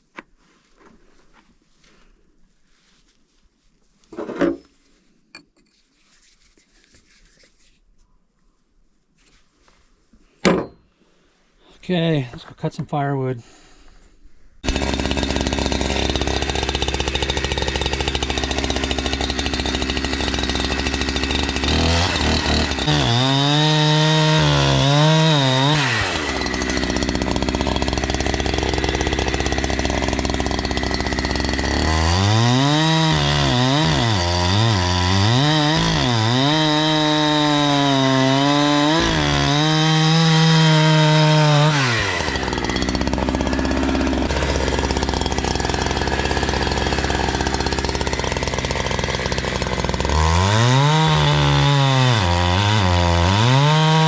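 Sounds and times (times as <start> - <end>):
chainsaw idling and revving: 14.6 - 54.0.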